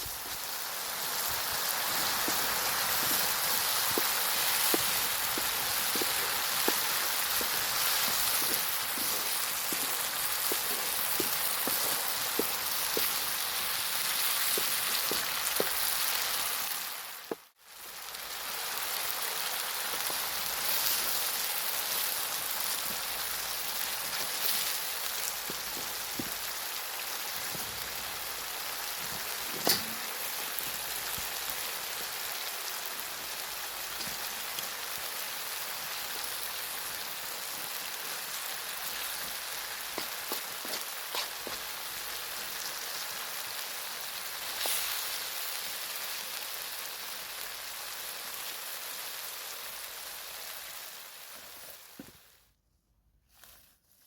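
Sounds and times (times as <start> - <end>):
food sizzling in a pan: 0.0 - 52.4
pops and crackles: 0.1 - 17.6, 24.0 - 26.5, 39.9 - 41.8.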